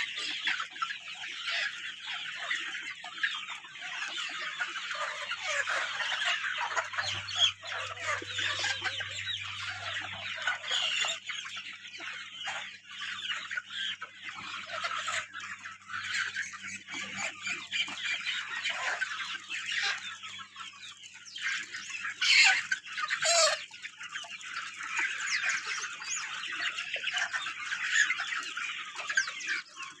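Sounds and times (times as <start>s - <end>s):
chickens clucking and calling: 0.0s - 30.0s.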